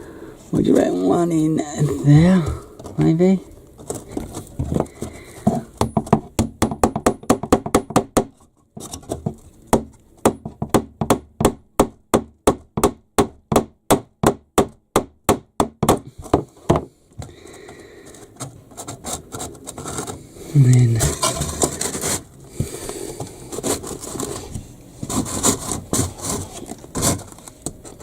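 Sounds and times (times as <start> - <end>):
hammer striking wood: 4.6 - 8.4, 9.7 - 17.3.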